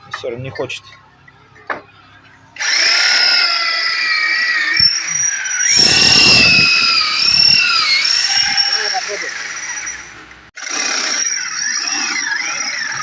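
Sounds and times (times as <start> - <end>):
drill bit squealing against metal: 2.6 - 13.0
electric drill boring into metal: 2.6 - 13.0.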